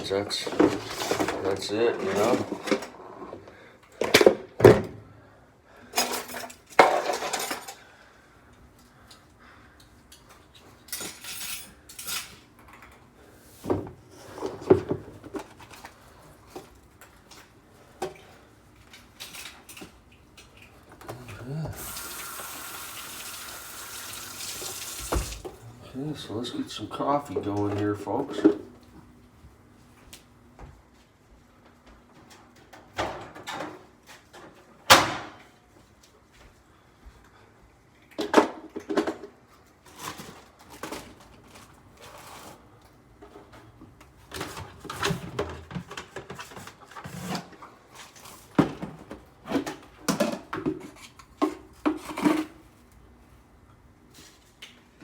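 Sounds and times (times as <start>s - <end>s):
dishes and utensils clattering: 6.0s - 7.8s, 10.9s - 13.0s.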